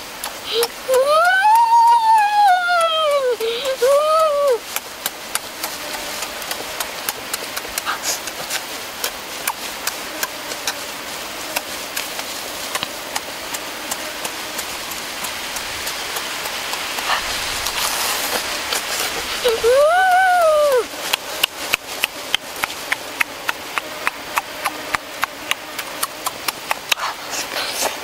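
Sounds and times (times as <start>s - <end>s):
steady hiss: 0.0s - 28.0s
chewing and lip-smacking: 4.5s - 19.6s, 21.1s - 28.0s.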